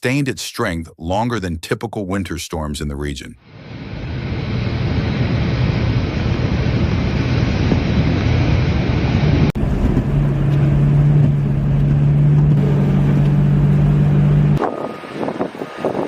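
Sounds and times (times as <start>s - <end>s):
rushing noise: 3.4s - 16.0s
low motor hum: 3.6s - 16.0s.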